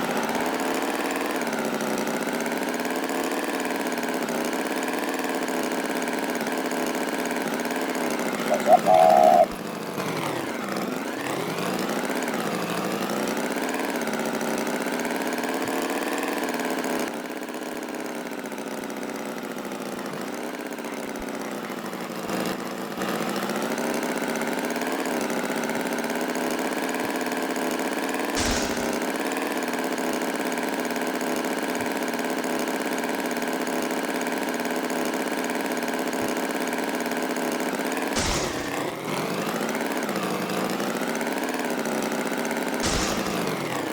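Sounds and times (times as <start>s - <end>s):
engine running: 0.0s - 17.0s, 28.4s - 29.8s, 37.6s - 43.9s
sharp clicks: 28.4s - 29.2s, 42.8s - 43.9s.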